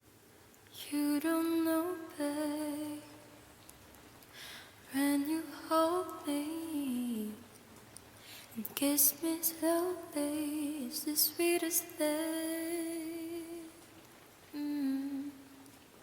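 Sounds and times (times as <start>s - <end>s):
woman breathing: 4.3s - 4.8s, 8.2s - 8.6s
woman humming: 14.6s - 15.6s.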